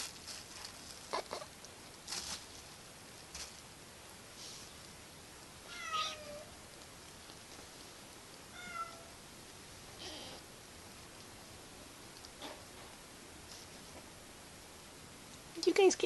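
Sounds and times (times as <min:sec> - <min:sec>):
soft scuffles of play: 0:02.0 - 0:03.7
kitten meowing: 0:05.7 - 0:06.5, 0:08.6 - 0:09.1, 0:10.0 - 0:10.4.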